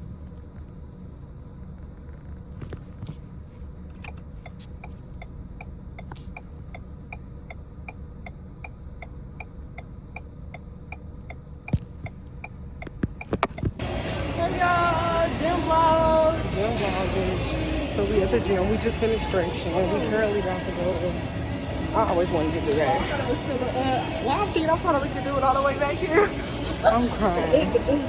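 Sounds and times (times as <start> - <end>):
car engine rumble in cabin: 0.0 - 14.5
turn signal ticking: 4.0 - 13.8.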